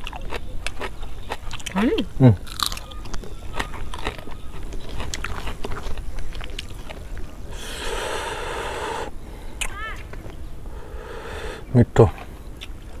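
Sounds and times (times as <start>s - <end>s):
crunchy chewing: 0.0s - 10.4s.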